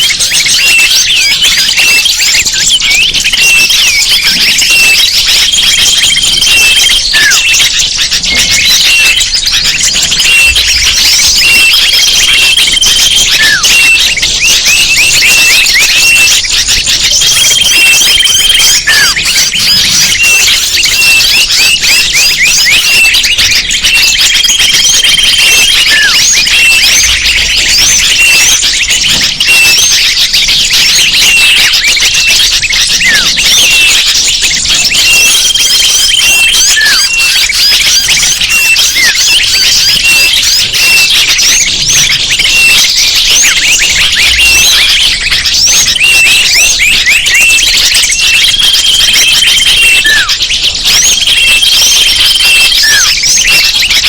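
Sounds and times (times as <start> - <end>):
falling bird call: 0.0 - 54.0
small birds chirping: 0.0 - 54.0.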